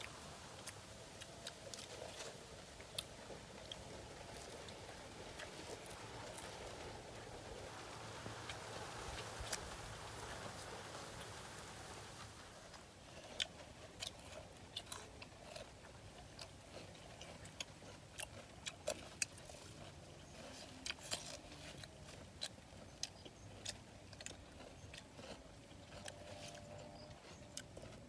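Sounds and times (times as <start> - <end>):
wet chewing and lip-smacking: 0.0 - 7.3, 13.0 - 28.0.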